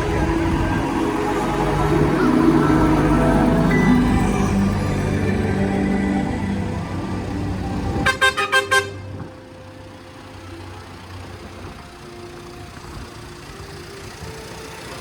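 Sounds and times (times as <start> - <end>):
low engine hum: 0.0 - 15.0
vehicle horn tooting: 8.0 - 9.3.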